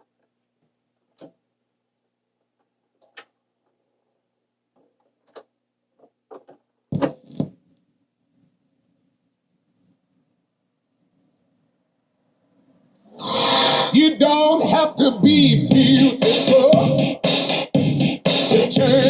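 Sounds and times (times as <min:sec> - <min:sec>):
music: 0:13.2 - 0:19.0.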